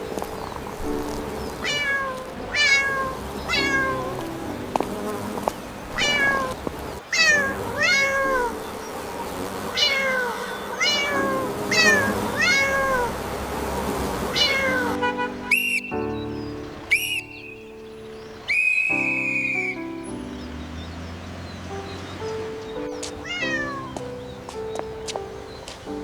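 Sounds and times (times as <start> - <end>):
cat meowing: 0.8 - 4.7, 5.9 - 15.1, 23.2 - 24.2.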